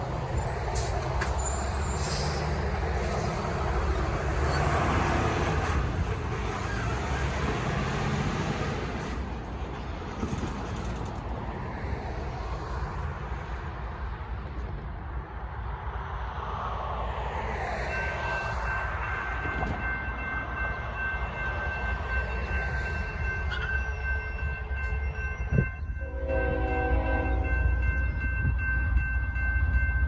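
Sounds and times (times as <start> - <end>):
freight train rumble: 0.0 - 30.0
crossing warning bell ringing: 17.9 - 30.0
locomotive air horn: 26.0 - 27.7.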